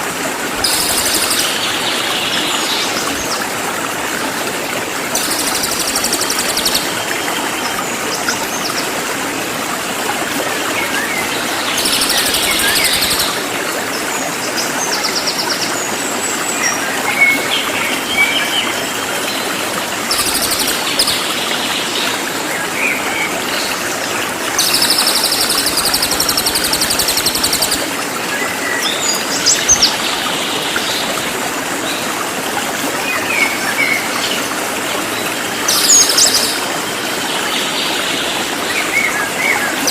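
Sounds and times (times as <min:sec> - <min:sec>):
stream water running: 0:00.0 - 0:39.9
songbird rattling trills: 0:00.6 - 0:01.6, 0:24.6 - 0:27.8.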